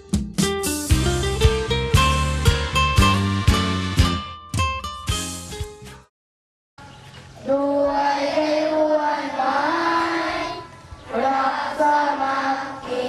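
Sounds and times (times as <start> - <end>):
young voices singing: 7.4 - 13.0.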